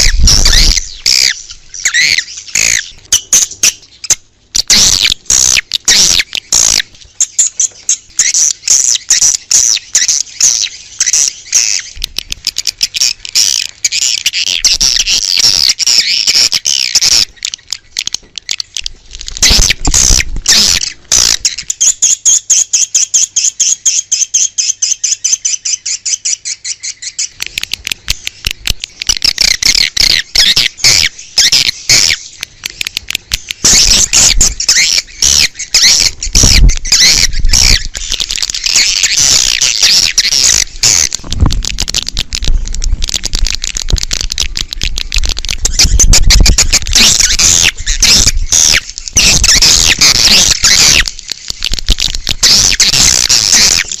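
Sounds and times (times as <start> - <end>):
swiftlets twittering chirps: 28.0 - 54.0.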